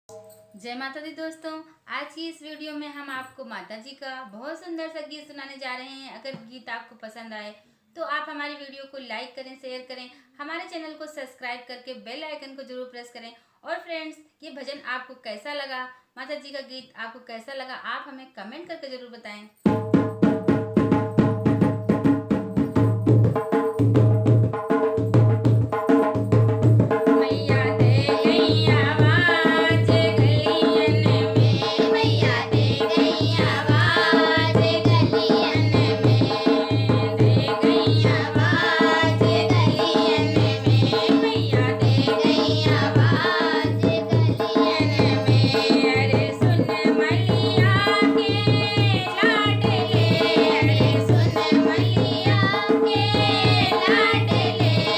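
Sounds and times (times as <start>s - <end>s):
hand drum beat: 19.7s - 54.9s
person singing: 27.2s - 54.9s.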